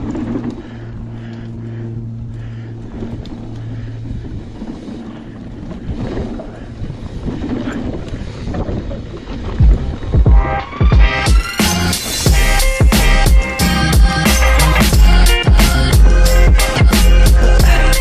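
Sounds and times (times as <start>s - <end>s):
steady low buzz: 0.0s - 7.4s, 9.6s - 18.0s
wind on microphone: 0.0s - 10.9s.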